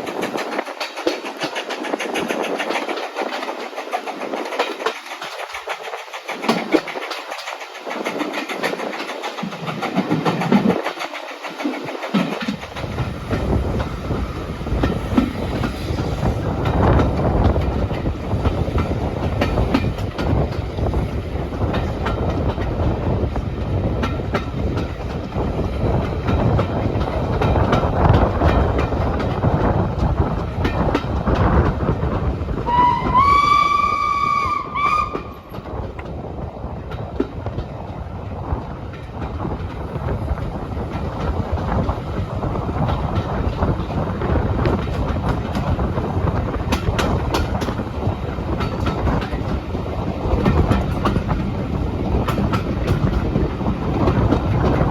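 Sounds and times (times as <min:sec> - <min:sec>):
train wheels knocking over rail joints: 0:00.0 - 0:54.9
steam locomotive whistle: 0:32.6 - 0:35.6.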